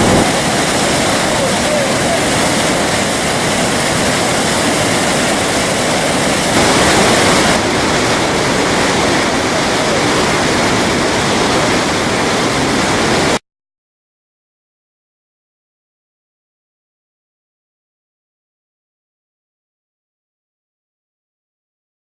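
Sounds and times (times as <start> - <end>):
heavy rain pouring: 0.0 - 13.4.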